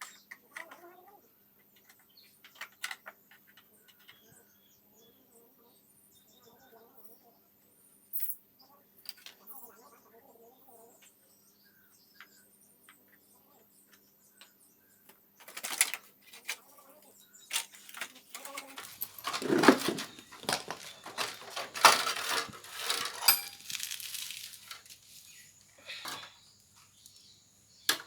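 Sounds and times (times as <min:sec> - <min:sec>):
metal parts clinking and scraping: 0:15.4 - 0:16.6, 0:17.5 - 0:27.3.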